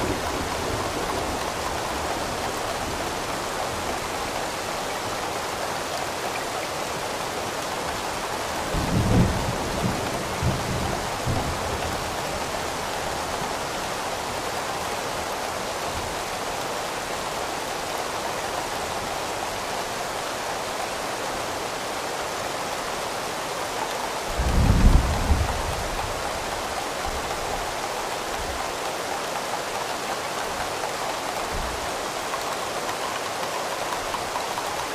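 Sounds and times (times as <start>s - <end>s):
heavy rain: 0.0s - 34.9s.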